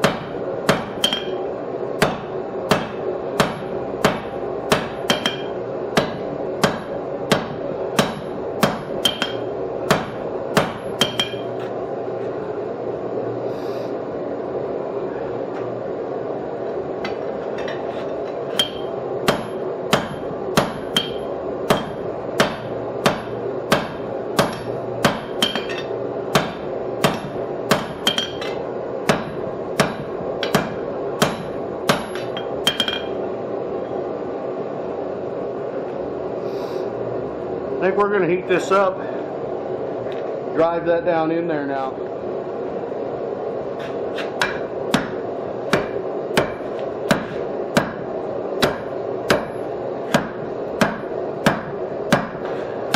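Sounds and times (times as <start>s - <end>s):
hammer striking steel on anvil: 0.0s - 1.4s, 2.0s - 11.5s, 18.5s - 33.2s, 43.8s - 48.0s, 48.6s - 52.9s
steady background drone: 0.0s - 52.9s.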